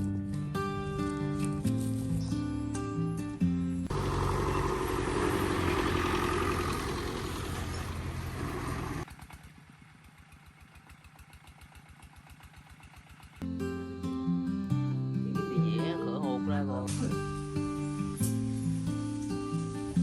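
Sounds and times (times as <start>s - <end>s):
small engine running: 3.9s - 13.4s.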